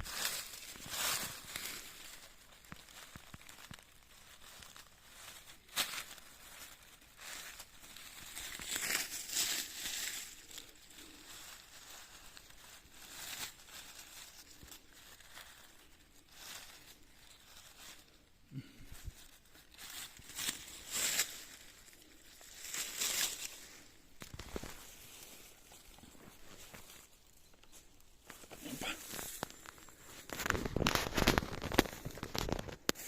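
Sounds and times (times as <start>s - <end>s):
rustling and tearing of leaf litter: 0.0s - 33.0s.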